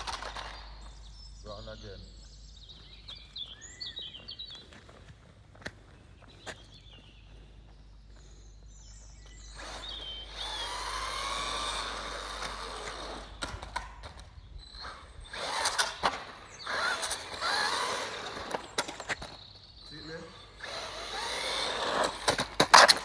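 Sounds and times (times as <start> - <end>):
electric motor whining: 0.0 - 1.5, 9.2 - 23.0.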